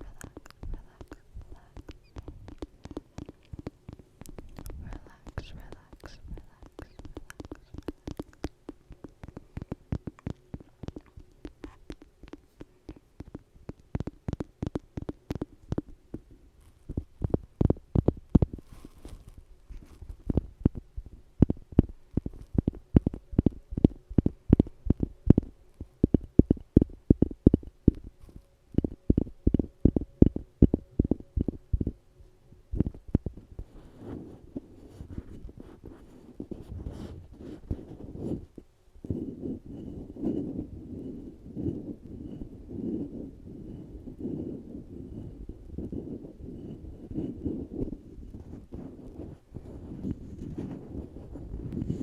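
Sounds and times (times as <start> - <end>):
rapid tapping: 0.0 - 16.3
soft low thumps: 0.0 - 32.0, 32.6 - 52.0.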